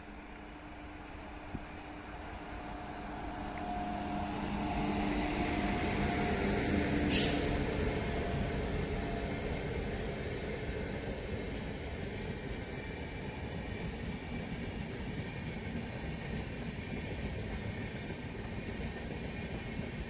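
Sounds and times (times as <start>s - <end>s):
locomotive hum: 0.0s - 13.6s
train wheels rumbling on rails: 0.0s - 20.0s
sharp hiss: 7.1s - 7.6s.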